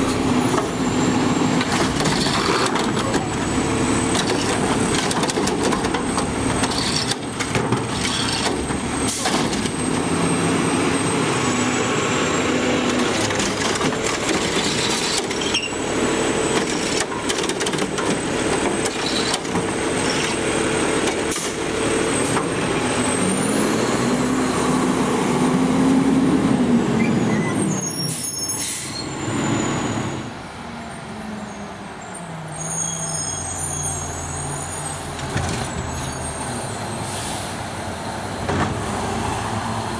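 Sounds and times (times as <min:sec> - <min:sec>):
garbage truck diesel engine: 0:00.0 - 0:39.9
air brake hiss: 0:37.0 - 0:37.6.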